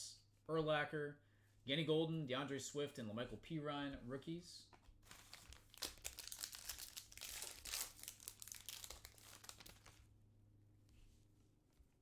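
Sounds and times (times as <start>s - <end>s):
foil wrapper crinkling and tearing: 5.0s - 10.1s.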